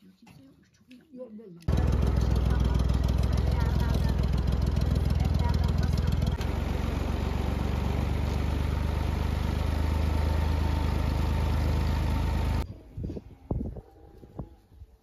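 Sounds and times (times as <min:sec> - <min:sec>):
engine idling: 0:01.7 - 0:12.6.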